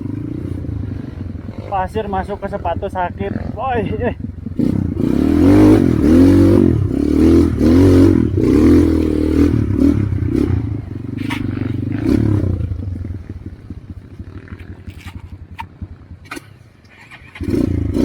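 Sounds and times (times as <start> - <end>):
motorcycle engine revving: 0.0 - 18.0
sharp clatters: 14.2 - 17.6.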